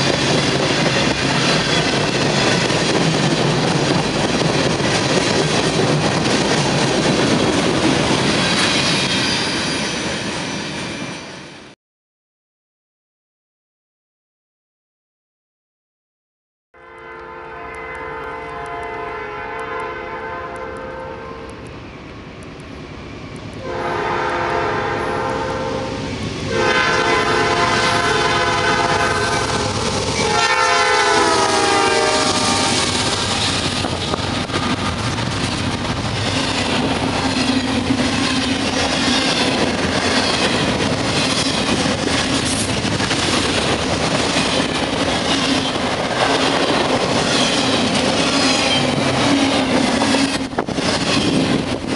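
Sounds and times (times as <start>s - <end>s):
train rumble: 0.0s - 11.8s, 17.4s - 51.9s
locomotive horn blasts: 16.8s - 21.6s, 23.6s - 29.6s, 30.2s - 32.8s.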